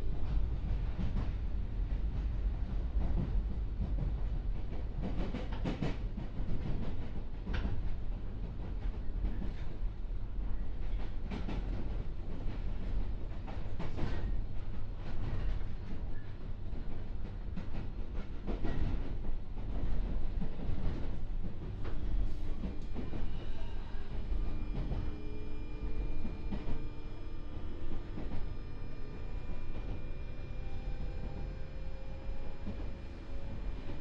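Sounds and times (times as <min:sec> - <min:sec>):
train wheels rumbling: 0:00.0 - 0:34.0.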